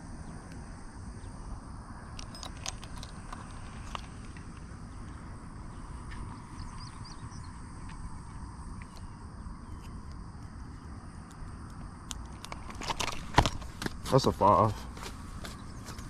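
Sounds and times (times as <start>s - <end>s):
wind rumble on microphone: 0.0s - 16.0s
handling clicks: 2.2s - 4.4s
faint bird chirps: 4.9s - 11.0s.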